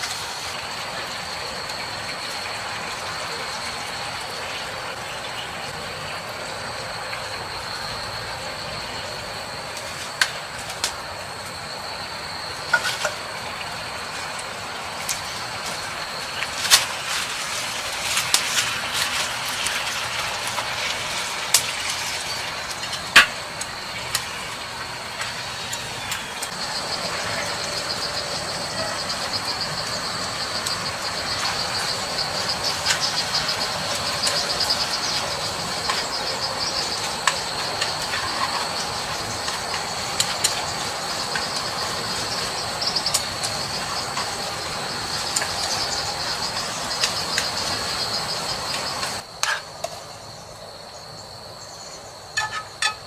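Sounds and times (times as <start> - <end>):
background hiss: 0.0 - 53.0
insects trilling: 0.0 - 53.0.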